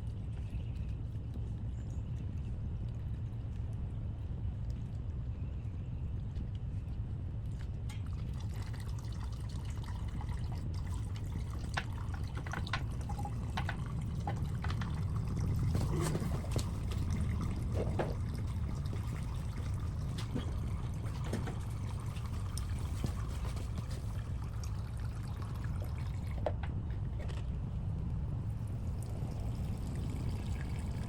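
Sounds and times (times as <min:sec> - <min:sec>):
gasoline trickling from fuel line: 0:07.4 - 0:31.0.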